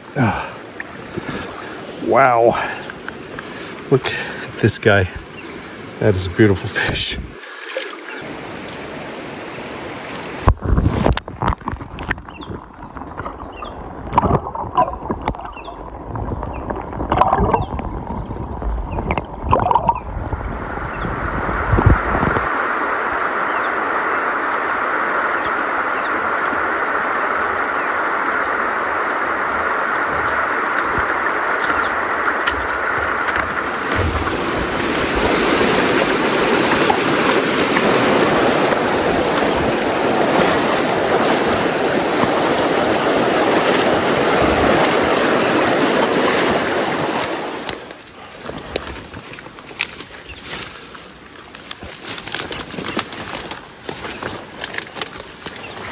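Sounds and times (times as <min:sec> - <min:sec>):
mountain stream rushing: 0:00.0 - 0:11.4, 0:21.5 - 0:55.9.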